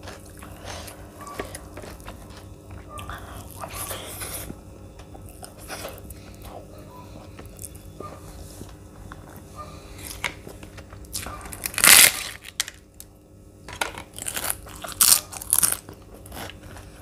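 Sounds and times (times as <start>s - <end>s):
person chewing with wet mouth sounds: 0.0s - 11.8s
faint steady hum: 0.0s - 17.0s.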